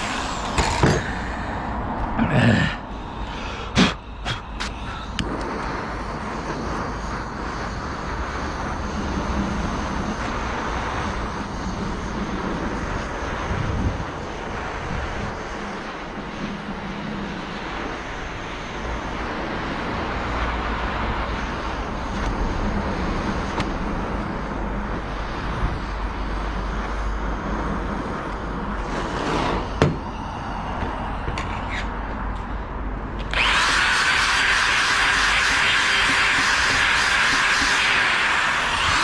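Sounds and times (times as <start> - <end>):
power tool whining: 0.0 - 1.4, 33.2 - 39.0
steady machine noise: 0.0 - 39.0.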